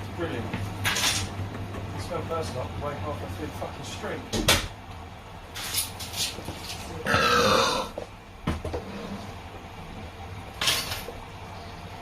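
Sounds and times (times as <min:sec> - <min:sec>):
person burping loudly: 0:07.0 - 0:08.0.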